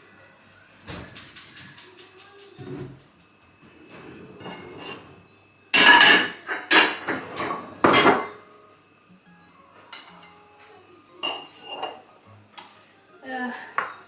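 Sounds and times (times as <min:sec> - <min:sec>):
utensils clattering against dishes: 0:00.8 - 0:08.5, 0:11.2 - 0:12.8
loud clanks of dishes: 0:03.9 - 0:05.2, 0:05.8 - 0:08.4.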